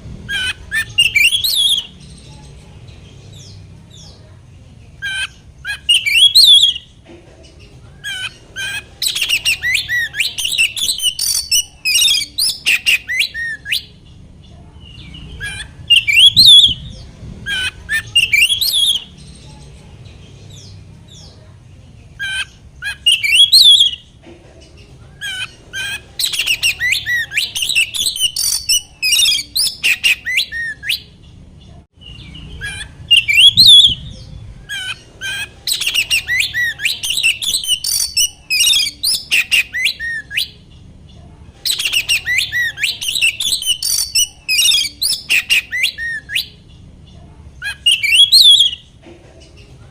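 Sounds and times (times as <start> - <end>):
faint low hum: 0.0 - 49.9
bird singing chirps and whistles: 0.3 - 2.0, 5.2 - 6.9, 8.6 - 13.9, 14.9 - 19.1, 22.8 - 24.0, 26.2 - 31.1, 32.0 - 34.2, 35.7 - 40.6, 41.7 - 46.5, 47.6 - 48.8.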